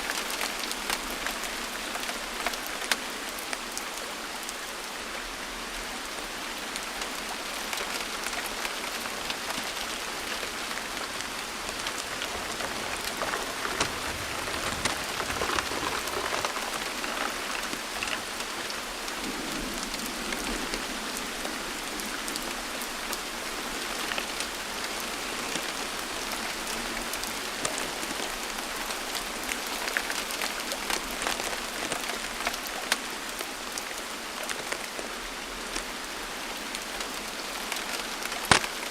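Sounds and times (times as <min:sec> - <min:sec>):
steady rain falling: 0:00.0 - 0:38.9
raindrops ticking close: 0:06.8 - 0:23.3, 0:36.8 - 0:38.9.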